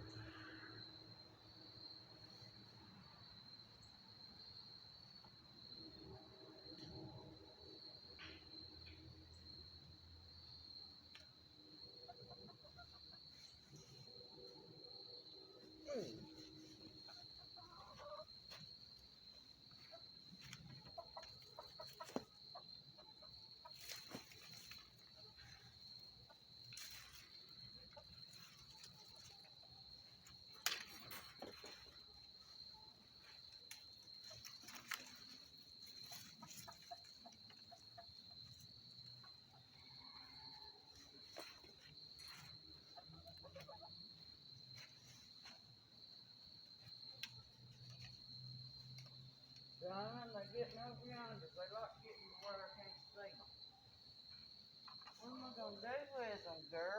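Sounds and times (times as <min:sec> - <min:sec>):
chickens clucking: 0:19.8 - 0:26.7, 0:33.6 - 0:39.8, 0:41.3 - 0:44.2.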